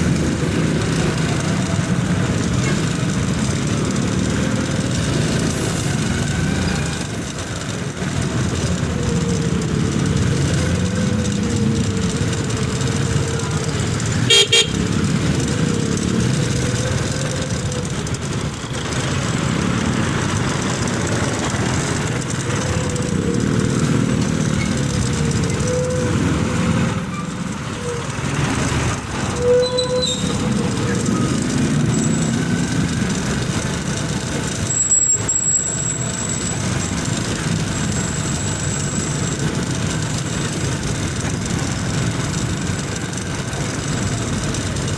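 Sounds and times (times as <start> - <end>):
motorcycle engine: 0.0 - 44.9
horn toot: 14.2 - 14.9.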